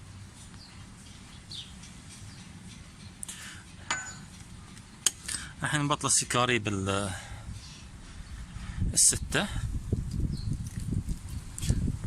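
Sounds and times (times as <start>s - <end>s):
sharp metallic clinks: 1.8s - 4.5s.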